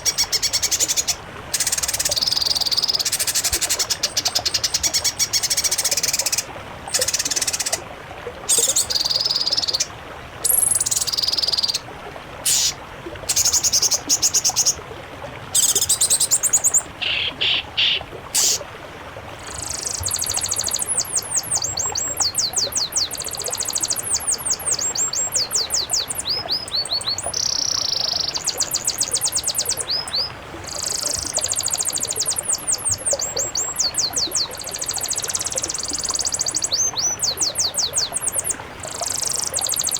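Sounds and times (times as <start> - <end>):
songbird singing: 0.0 - 7.8, 8.5 - 11.8, 19.4 - 39.9.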